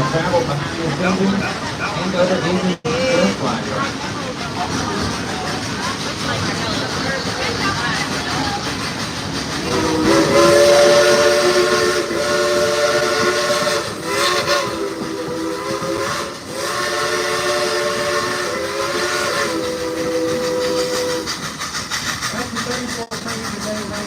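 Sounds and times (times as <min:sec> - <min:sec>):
train running noise: 0:00.0 - 0:24.0
steam hiss: 0:03.0 - 0:24.0
steam whistle chord blasts: 0:09.7 - 0:21.3.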